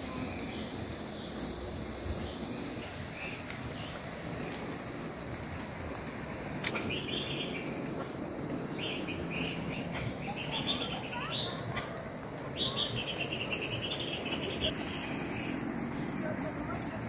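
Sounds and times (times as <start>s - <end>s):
high-pitched insect drone: 0.0s - 17.0s
birds chirping: 6.8s - 7.8s, 8.7s - 11.7s, 12.5s - 17.0s.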